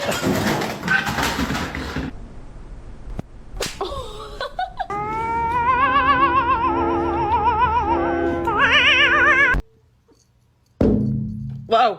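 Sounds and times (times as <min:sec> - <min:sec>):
operatic singing: 0:04.9 - 0:09.6.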